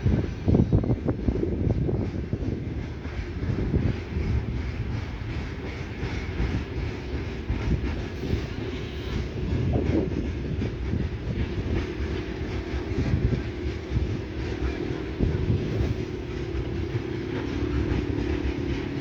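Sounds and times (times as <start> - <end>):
train wheels clattering on rails: 0.0 - 19.0.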